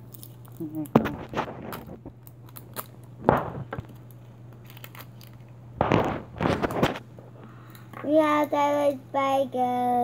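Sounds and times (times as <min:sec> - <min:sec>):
wrapper tearing and crinkling: 0:00.0 - 0:03.1, 0:03.9 - 0:07.0.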